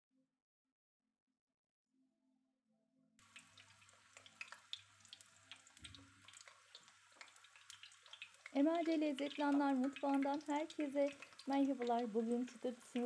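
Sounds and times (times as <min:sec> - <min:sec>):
vegetables sizzling in hot oil: 0:03.2 - 0:13.0
small oil pops: 0:03.3 - 0:12.1.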